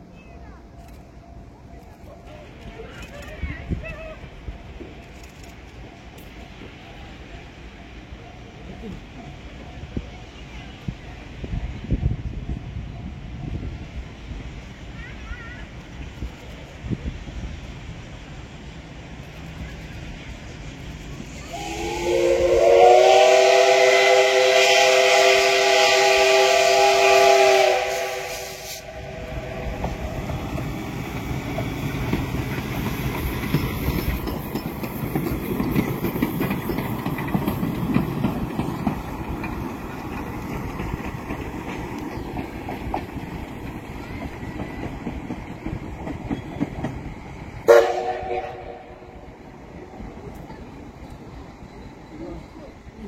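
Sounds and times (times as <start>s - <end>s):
train wheels rumbling on rails: 0.0s - 53.0s
train horn: 21.5s - 30.3s, 47.6s - 49.2s.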